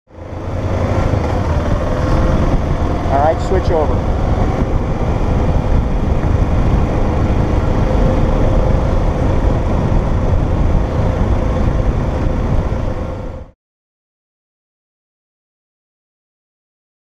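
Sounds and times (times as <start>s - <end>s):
motorcycle engine: 0.1s - 13.5s
road noise: 0.1s - 13.6s
wind rush on microphone: 0.1s - 13.6s.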